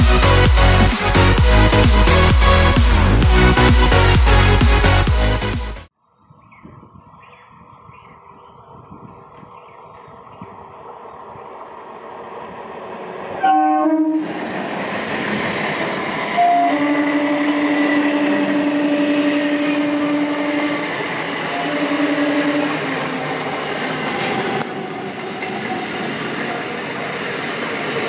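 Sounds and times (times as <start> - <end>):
train rumble: 0.0 - 5.5, 6.8 - 28.0
wheel and rail noise: 7.1 - 28.0
train horn blast: 13.4 - 14.4, 16.3 - 23.4.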